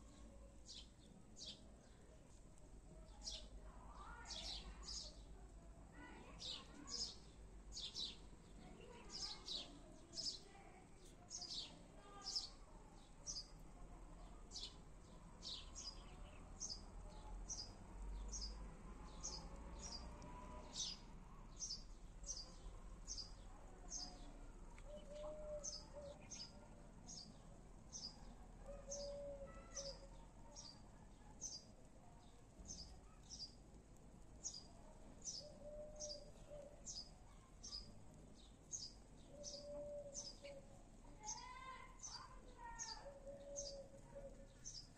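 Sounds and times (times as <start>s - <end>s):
small bird chirping: 14.5s - 33.7s, 34.4s - 44.9s.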